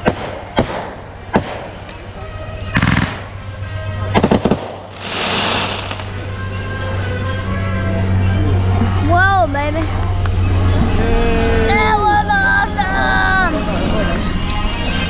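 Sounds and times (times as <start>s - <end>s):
firework bang: 4.2s - 6.2s
firework crackling: 4.2s - 6.2s
firework hissing fizz: 4.9s - 6.2s.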